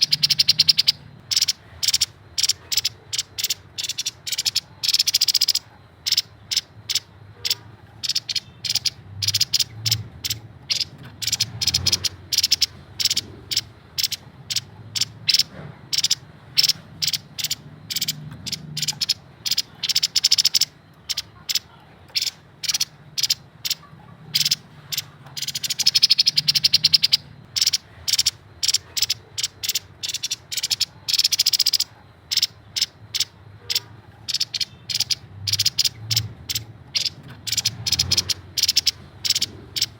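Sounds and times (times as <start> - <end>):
bird rattling trills: 0.0 - 39.9.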